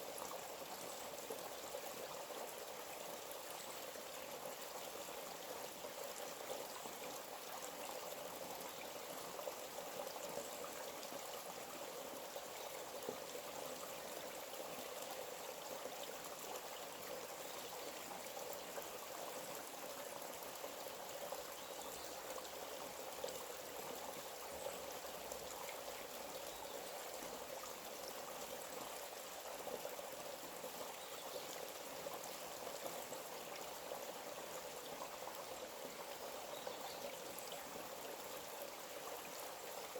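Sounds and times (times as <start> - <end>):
stream splashing and trickling: 0.0 - 39.9.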